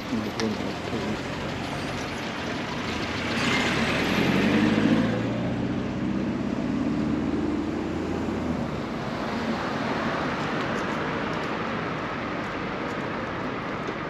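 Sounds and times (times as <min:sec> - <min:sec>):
street noise: 0:00.0 - 0:14.0
car driving past: 0:02.9 - 0:10.3.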